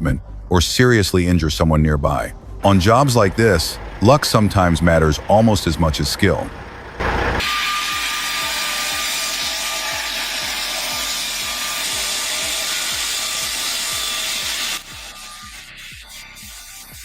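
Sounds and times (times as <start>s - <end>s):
machine cutting wood: 2.6s - 17.0s.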